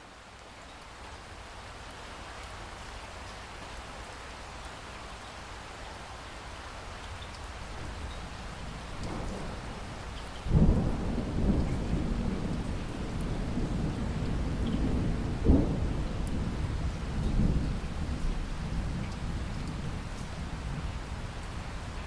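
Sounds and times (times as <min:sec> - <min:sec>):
steady rain: 0:00.0 - 0:22.0
thunder rumbling: 0:07.8 - 0:22.0.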